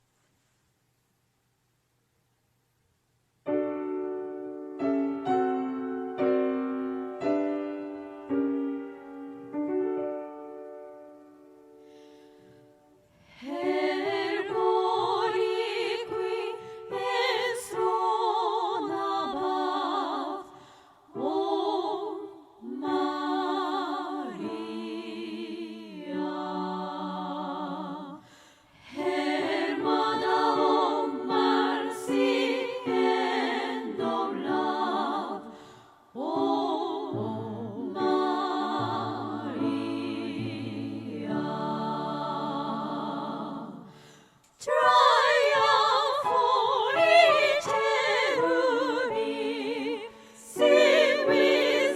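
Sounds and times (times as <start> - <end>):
layered female choir singing: 13.2 - 51.9.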